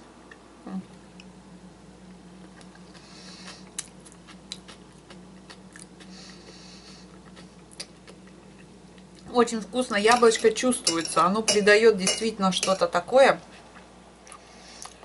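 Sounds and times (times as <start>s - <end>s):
steady low hum: 0.0s - 15.0s
person chewing food: 2.4s - 9.3s, 13.6s - 15.0s.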